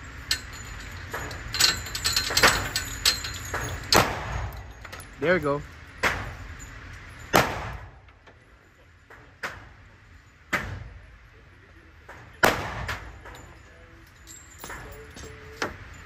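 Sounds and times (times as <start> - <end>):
handgun shots with echo: 7.3 - 7.9, 12.4 - 13.1.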